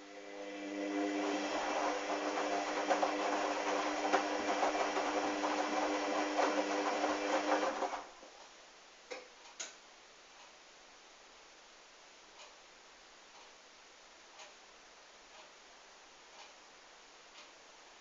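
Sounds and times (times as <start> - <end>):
washing machine motor whine: 0.0 - 8.2.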